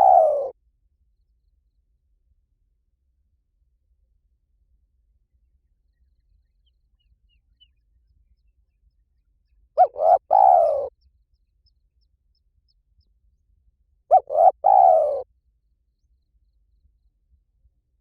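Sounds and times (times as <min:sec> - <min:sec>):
dove cooing: 0:00.0 - 0:00.6, 0:09.8 - 0:10.9, 0:14.1 - 0:15.3.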